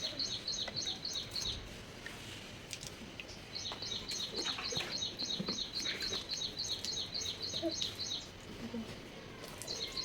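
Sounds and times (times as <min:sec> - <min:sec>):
bird chirping: 0:00.0 - 0:01.6, 0:03.5 - 0:08.4.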